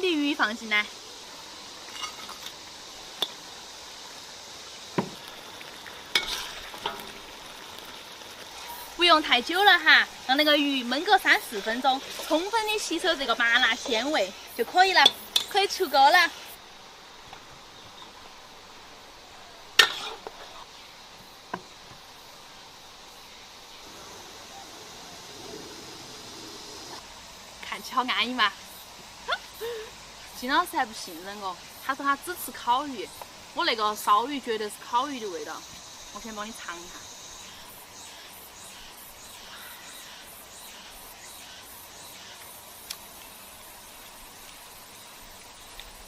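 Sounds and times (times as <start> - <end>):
faint steady hiss: 0.0 - 46.0
sauce sizzling and bubbling in a wok: 0.0 - 46.0.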